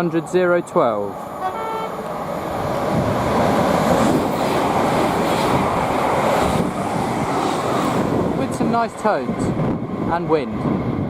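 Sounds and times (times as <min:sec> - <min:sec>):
train passing at speed: 0:00.0 - 0:11.0
wind on microphone: 0:02.4 - 0:11.0.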